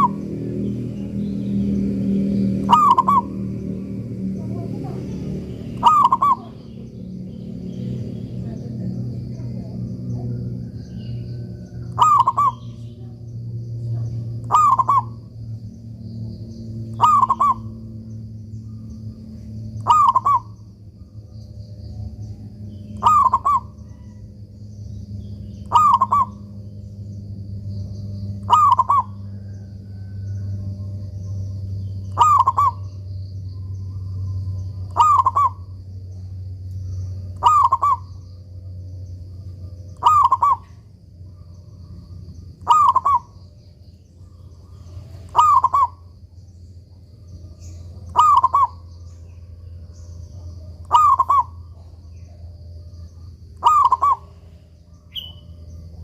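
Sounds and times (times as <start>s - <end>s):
dove cooing: 0.0s - 7.3s, 8.7s - 13.2s, 14.2s - 15.3s, 16.9s - 17.9s, 19.8s - 20.6s, 22.9s - 24.3s, 25.6s - 26.8s, 28.3s - 31.4s, 32.1s - 33.0s, 33.9s - 35.7s, 37.4s - 38.1s, 39.9s - 43.4s, 44.2s - 46.1s, 47.4s - 48.9s, 50.3s - 52.4s, 53.0s - 54.5s
steady low hum: 0.0s - 56.0s.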